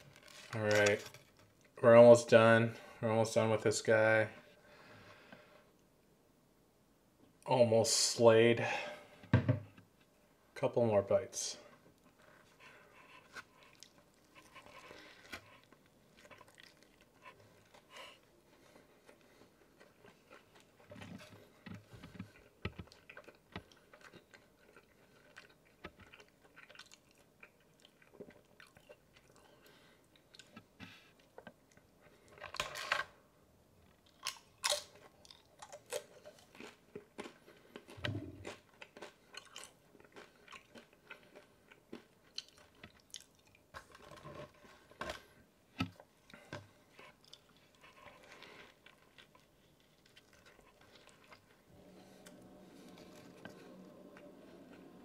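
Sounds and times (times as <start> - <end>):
chewing and biting food: 11.9 - 32.8, 33.9 - 45.3, 46.0 - 55.0.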